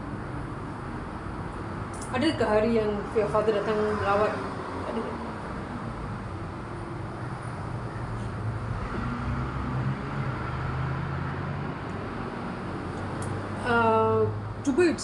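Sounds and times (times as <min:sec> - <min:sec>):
low traffic-like hum: 0:00.0 - 0:15.0.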